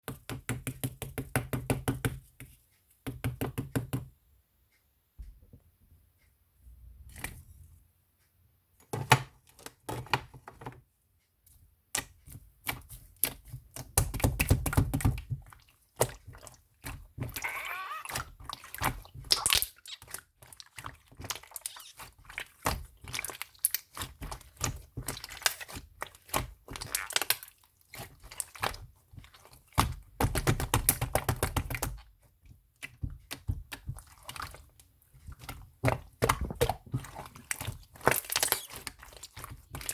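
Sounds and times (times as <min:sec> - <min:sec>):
slime squeezed with clicks: 0:19.3 - 0:20.2, 0:21.6 - 0:22.0, 0:38.2 - 0:38.8.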